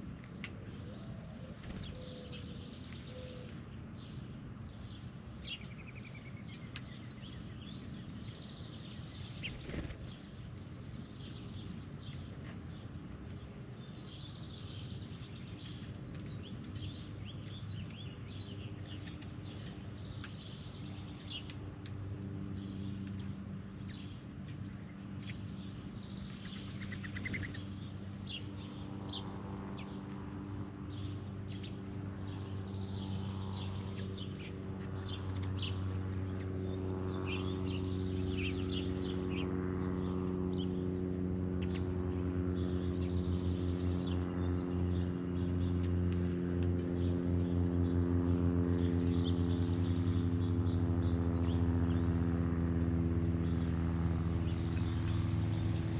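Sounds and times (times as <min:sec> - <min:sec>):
engine hum: 0:00.0 - 0:55.9
birds chirping: 0:00.1 - 0:55.9.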